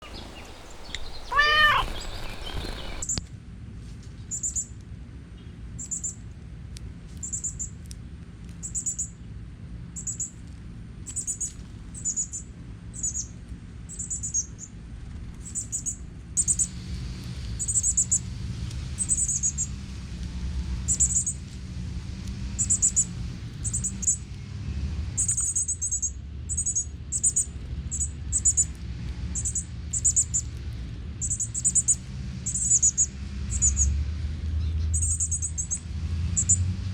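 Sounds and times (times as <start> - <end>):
bird call sweeping up and down: 0.0 - 3.0
short high bird chirps: 0.0 - 3.0.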